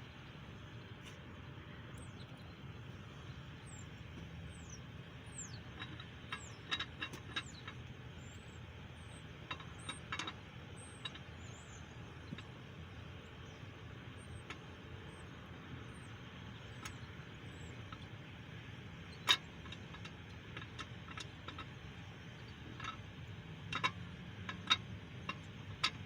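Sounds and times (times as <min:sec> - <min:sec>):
steady low hum: 0:00.0 - 0:26.0
light metal clicks and knocks: 0:04.1 - 0:08.4, 0:09.0 - 0:12.7, 0:13.4 - 0:15.2, 0:16.1 - 0:18.4, 0:19.0 - 0:26.0.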